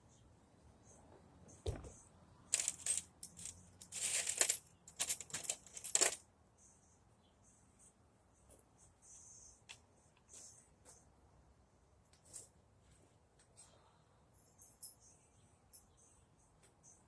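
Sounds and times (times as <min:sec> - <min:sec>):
soft thump: 0:01.7 - 0:02.0
small metal pieces clinking: 0:02.5 - 0:06.2.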